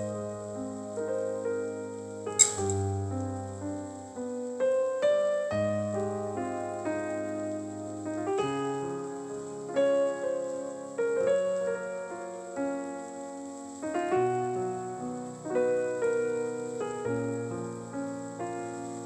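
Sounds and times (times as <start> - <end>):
piano chords: 0.0 - 19.0.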